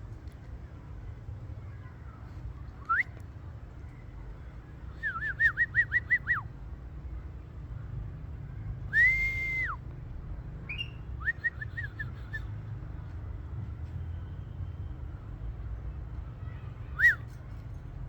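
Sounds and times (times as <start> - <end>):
parakeet whistling: 10.7 - 11.0.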